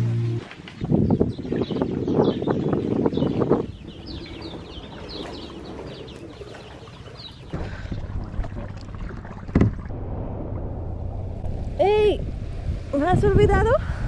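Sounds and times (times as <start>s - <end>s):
bird chirping: 1.0s - 7.6s
low steady rush: 8.0s - 14.0s.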